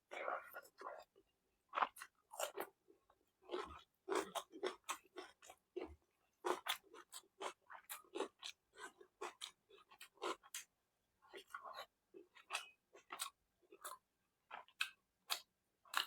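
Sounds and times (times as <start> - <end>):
person chewing: 3.5 - 10.6.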